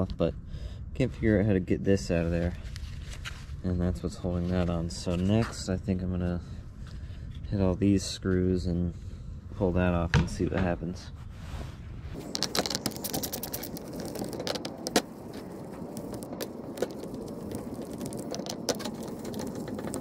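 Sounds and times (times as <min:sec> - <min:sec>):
scratchy rustle: 0:11.2 - 0:20.0.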